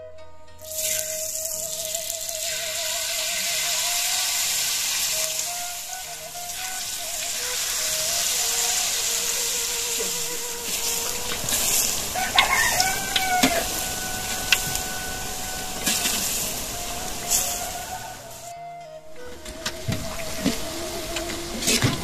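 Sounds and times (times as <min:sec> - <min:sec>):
batter sizzling in hot oil: 0:00.7 - 0:17.7
rooster crowing: 0:09.5 - 0:18.5.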